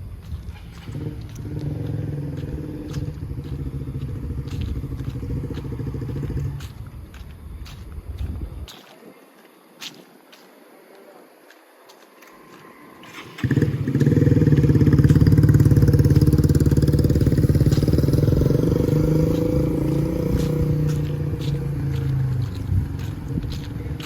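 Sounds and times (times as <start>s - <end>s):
motorbike engine running: 0.7s - 6.6s, 13.2s - 24.0s.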